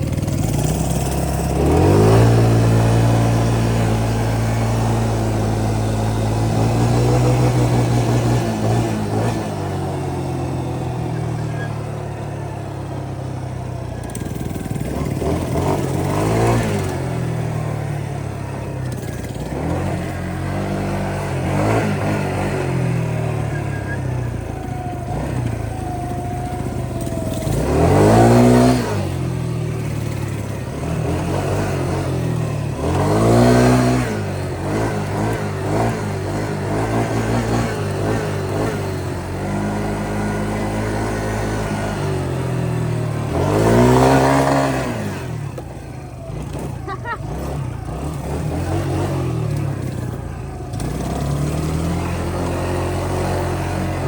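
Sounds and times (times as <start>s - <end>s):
small engine revving: 0.0s - 54.0s.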